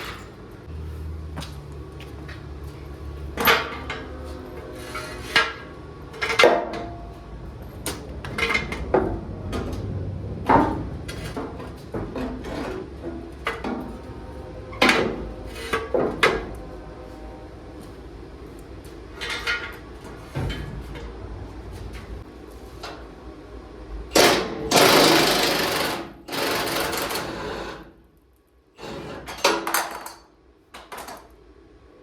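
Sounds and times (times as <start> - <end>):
metal clanks and knocks: 2.6 - 23.0.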